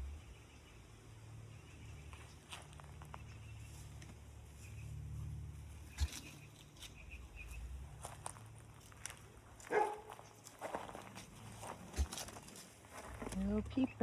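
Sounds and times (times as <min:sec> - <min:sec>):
footsteps and scratching on ground: 0:02.1 - 0:13.8.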